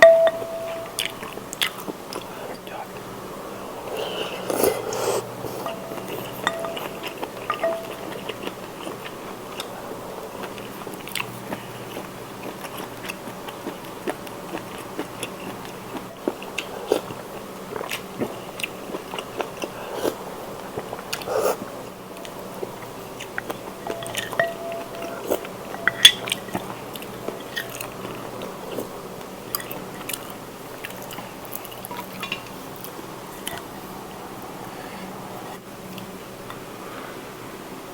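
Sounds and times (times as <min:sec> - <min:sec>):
crunchy wet chewing: 0:03.8 - 0:33.8.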